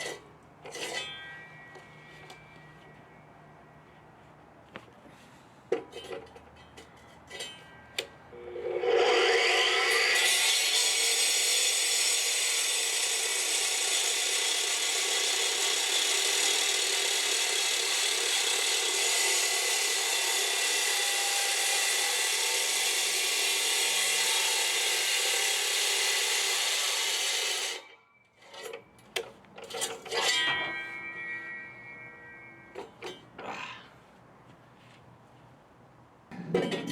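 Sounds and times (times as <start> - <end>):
power saw cutting: 8.4 - 28.0
knocks and clatter: 36.3 - 36.9.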